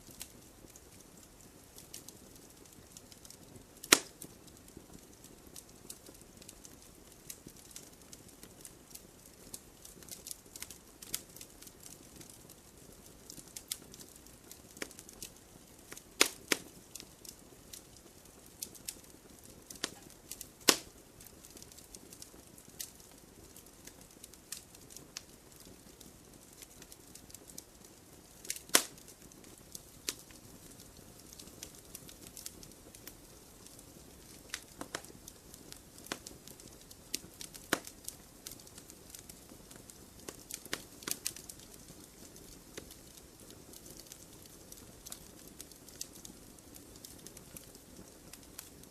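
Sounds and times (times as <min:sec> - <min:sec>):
campfire crackling: 0:00.0 - 0:48.9
sharp fire pops: 0:03.8 - 0:04.4, 0:13.3 - 0:17.9, 0:19.6 - 0:22.2, 0:28.4 - 0:35.4, 0:36.0 - 0:46.2.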